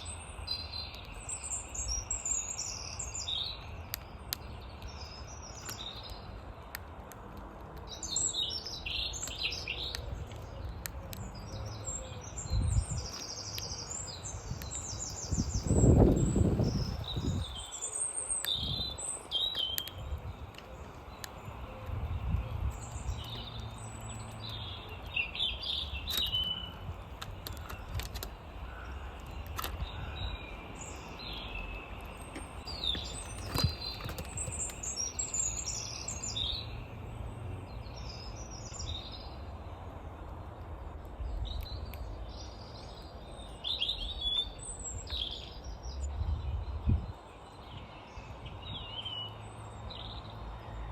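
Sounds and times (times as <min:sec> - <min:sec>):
songbirds chirping: 0:00.0 - 0:50.9
sharp clicks: 0:18.4 - 0:29.9.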